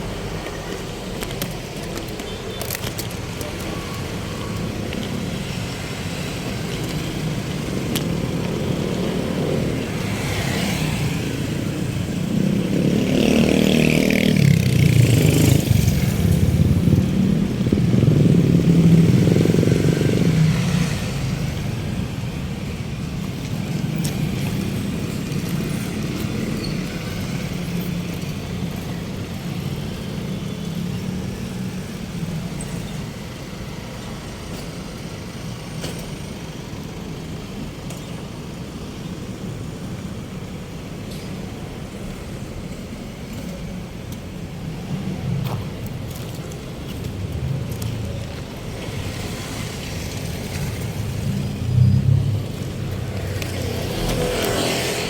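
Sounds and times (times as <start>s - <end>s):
steady traffic noise: 0.0s - 55.0s.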